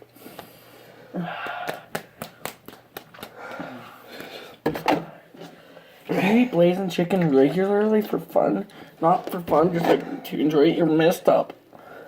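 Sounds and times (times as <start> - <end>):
person breathing hard: 0.2 - 2.6, 3.2 - 4.6, 11.7 - 12.0.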